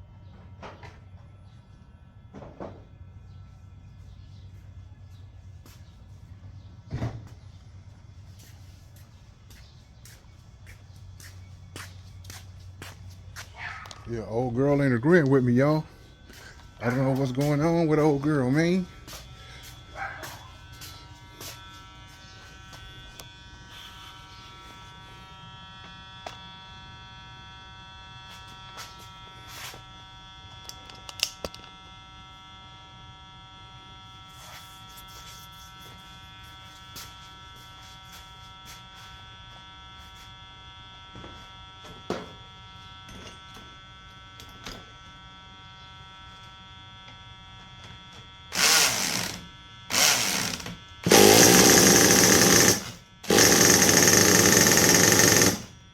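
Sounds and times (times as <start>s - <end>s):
electrical buzz: 14.1s - 41.8s, 42.4s - 55.9s
engine turning over: 48.6s - 55.7s.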